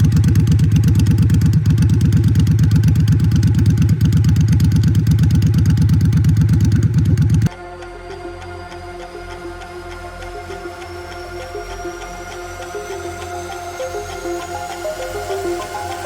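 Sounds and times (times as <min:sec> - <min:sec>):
motorcycle engine running: 0:00.0 - 0:07.5
music: 0:07.5 - 0:16.0.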